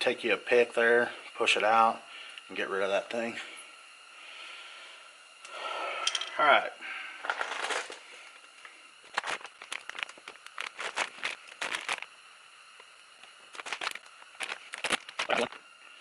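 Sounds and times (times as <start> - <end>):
small parts clicking: 7.2 - 12.1, 12.8 - 15.6
plastic packaging crinkling: 7.3 - 8.4, 9.0 - 12.2, 12.8 - 15.6.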